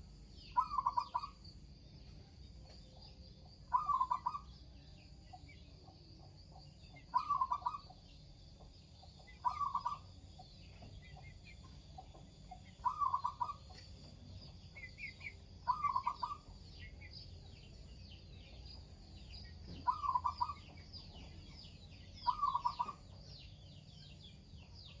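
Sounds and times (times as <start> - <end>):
faint high bird chirping: 0.0 - 25.0
dove cooing: 0.6 - 1.4, 3.7 - 4.5, 7.0 - 7.8, 9.4 - 10.0, 12.8 - 13.6, 15.7 - 16.5, 19.8 - 20.6, 22.3 - 23.0.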